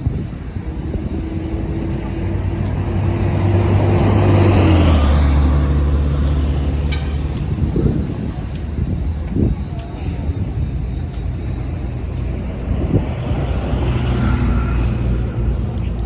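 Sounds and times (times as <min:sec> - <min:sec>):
vehicle engine driving past: 0:00.3 - 0:08.4, 0:11.5 - 0:16.0.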